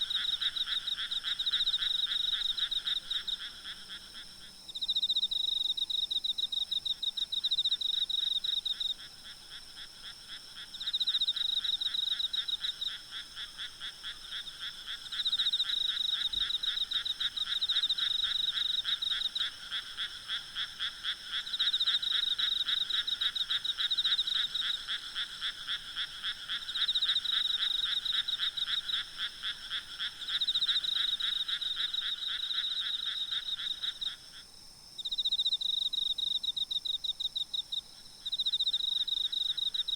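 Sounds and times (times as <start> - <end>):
night insects trilling: 0.0 - 39.9
frogs calling: 8.6 - 39.9.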